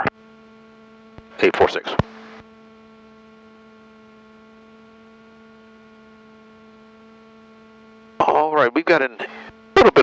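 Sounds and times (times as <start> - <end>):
intercom electrical hum: 0.0 - 10.0.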